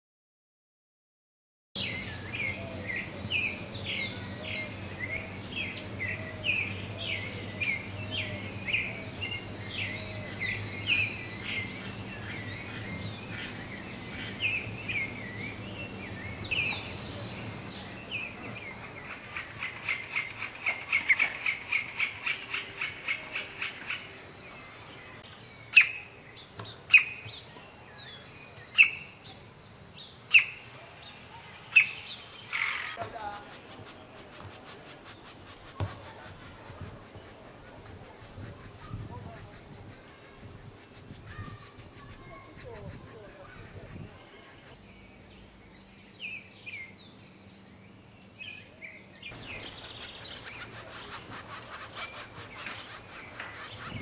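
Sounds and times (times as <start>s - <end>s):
sharp bird calls: 1.8s - 27.6s, 28.2s - 29.4s, 30.1s - 54.0s
birds chirping and whistling: 31.6s - 54.0s
fast repeated bird notes: 31.7s - 46.5s, 49.3s - 54.0s.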